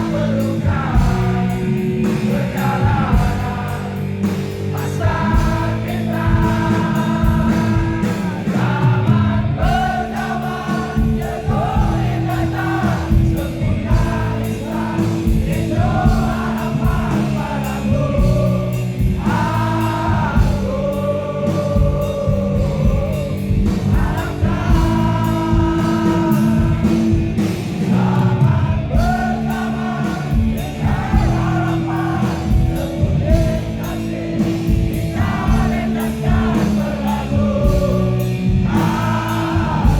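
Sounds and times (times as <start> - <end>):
live rock band playing: 0.0 - 39.9
person singing: 27.8 - 39.9.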